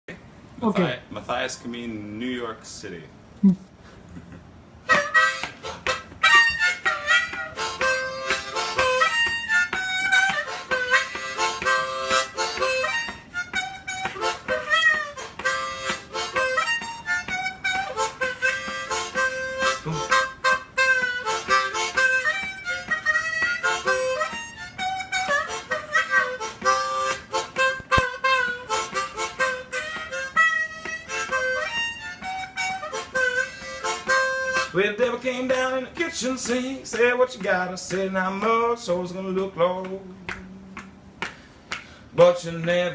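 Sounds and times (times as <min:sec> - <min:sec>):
harmonica playing: 0:04.8 - 0:36.6.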